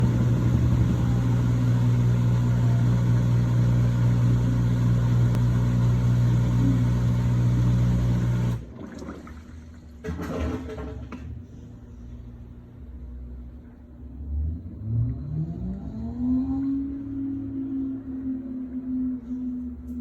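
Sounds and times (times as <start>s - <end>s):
washing machine spinning hum: 0.0s - 14.1s.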